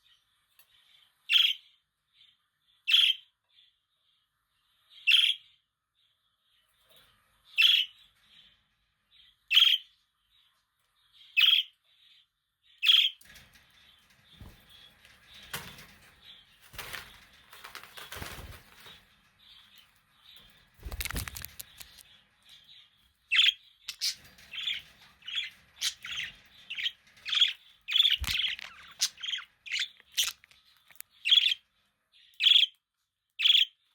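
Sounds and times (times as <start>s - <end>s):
rustling and scuffling: 20.4s - 22.1s
budgerigars chirping: 23.3s - 31.6s, 32.4s - 32.7s, 33.4s - 33.7s.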